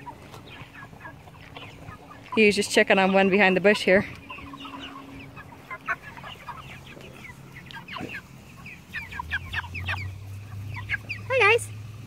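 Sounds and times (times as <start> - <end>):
louder chicken calls: 0.0 - 11.3
chickens peeping and clucking: 0.0 - 12.0.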